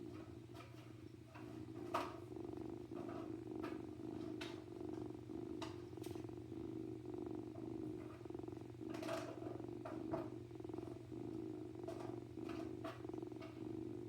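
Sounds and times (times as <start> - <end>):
kitten purring: 0.0 - 14.0
faint clicks: 0.1 - 6.6, 7.4 - 14.0.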